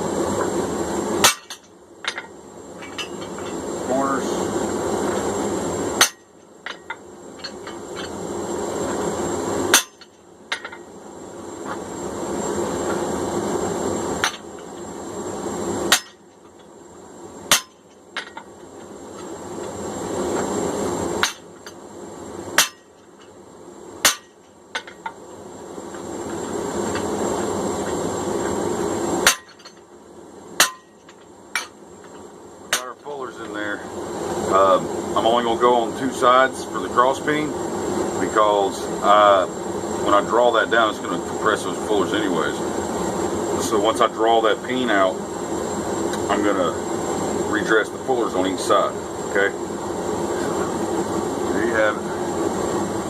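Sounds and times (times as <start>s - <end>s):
hand hammer striking steel: 17.5s - 18.4s, 24.0s - 25.0s, 29.3s - 29.8s, 30.6s - 31.0s.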